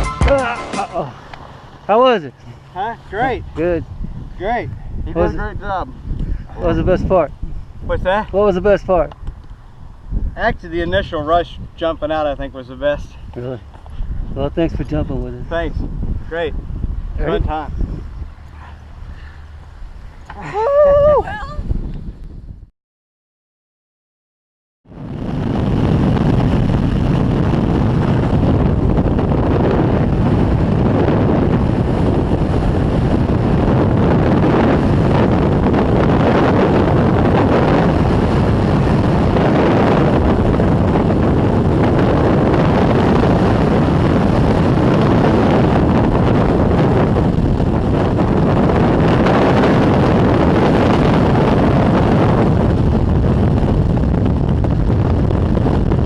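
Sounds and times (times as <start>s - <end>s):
freefall wind buffeting microphone: 0.0s - 22.7s, 24.8s - 56.0s.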